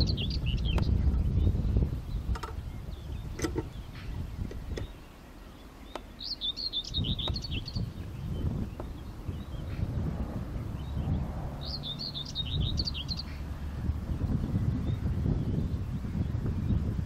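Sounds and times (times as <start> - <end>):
small bird twittering: 0.0 - 16.8
low rumble: 7.0 - 17.0.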